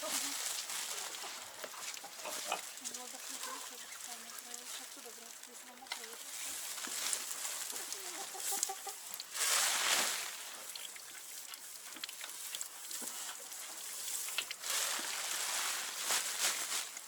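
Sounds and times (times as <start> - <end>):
chickens clucking: 0.0 - 9.4.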